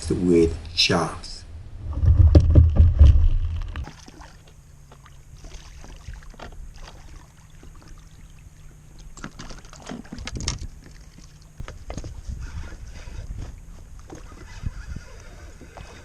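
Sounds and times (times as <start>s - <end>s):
low rumble: 1.4s - 3.9s.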